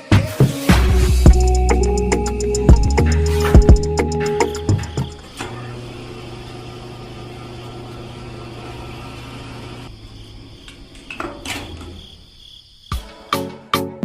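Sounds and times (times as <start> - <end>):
electric motor humming: 1.9 - 9.9.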